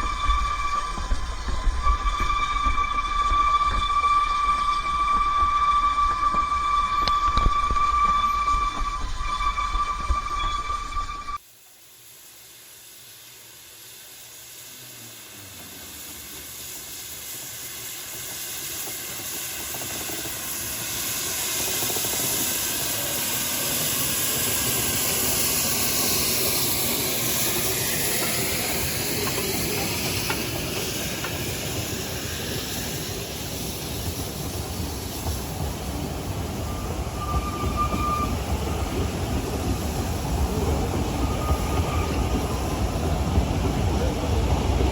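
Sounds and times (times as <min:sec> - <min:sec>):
steam locomotive hissing: 0:00.0 - 0:44.9.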